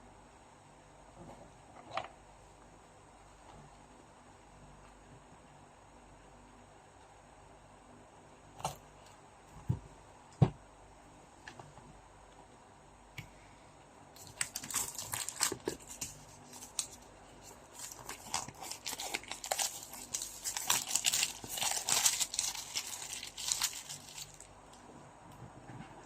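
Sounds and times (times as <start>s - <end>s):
plastic wrapping crinkling and tearing: 14.2s - 24.6s.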